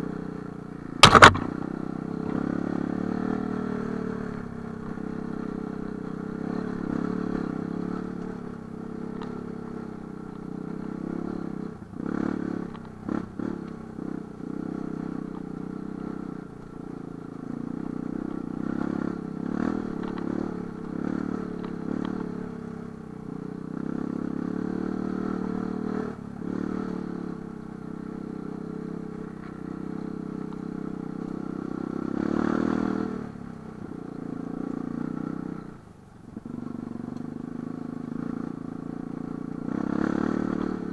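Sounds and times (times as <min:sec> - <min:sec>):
motorcycle engine revving: 0:00.0 - 0:40.9
clatter and knocks: 0:01.0 - 0:01.5.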